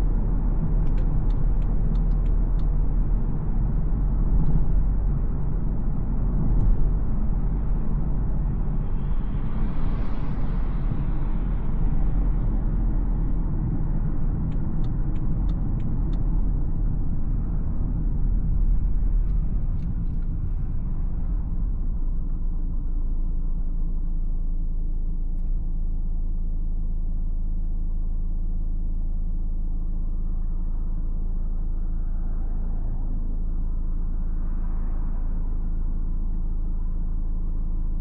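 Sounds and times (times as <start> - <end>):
tyre road noise: 0.0 - 24.2
diesel car engine hum: 0.0 - 38.0.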